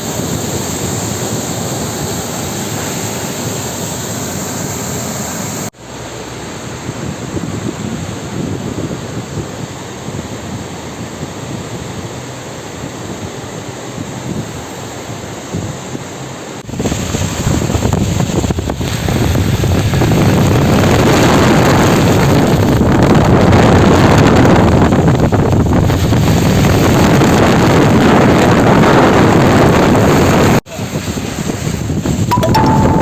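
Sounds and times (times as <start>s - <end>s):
rushing flood water: 0.0s - 8.3s
wind buffeting microphone: 6.8s - 14.6s, 16.6s - 32.3s.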